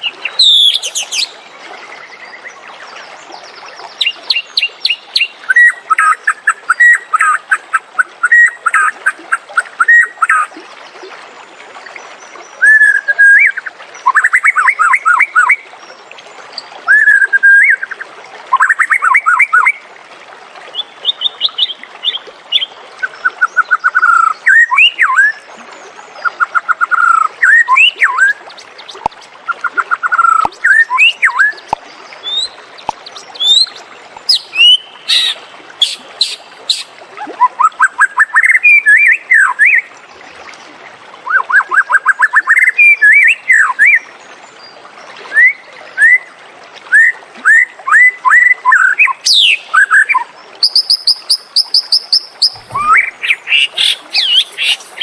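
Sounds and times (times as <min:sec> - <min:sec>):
songbird singing: 0:00.0 - 0:10.5, 0:12.2 - 0:15.7, 0:16.5 - 0:19.8, 0:20.7 - 0:25.5, 0:26.2 - 0:39.9, 0:46.9 - 0:55.0.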